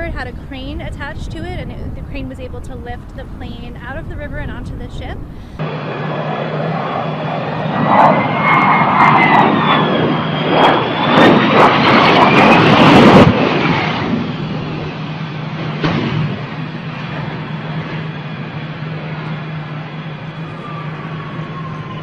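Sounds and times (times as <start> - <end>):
low steady hum: 0.0 - 5.6
jet engines roaring: 0.0 - 22.0.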